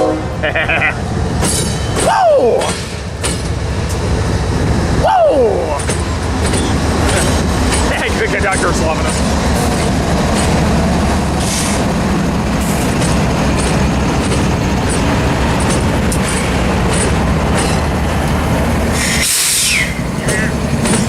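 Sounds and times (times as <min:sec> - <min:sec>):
diesel locomotive drone: 0:00.0 - 0:21.0
freight train rumble: 0:00.0 - 0:21.0
wheels clicking over rail joints: 0:01.4 - 0:04.3, 0:05.7 - 0:21.0.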